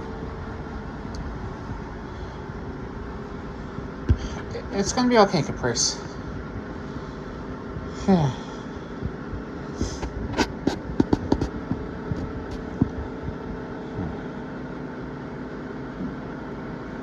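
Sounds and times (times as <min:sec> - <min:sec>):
steady mechanical hum: 0:00.0 - 0:17.0
sharp clicks and knocks: 0:10.0 - 0:13.0.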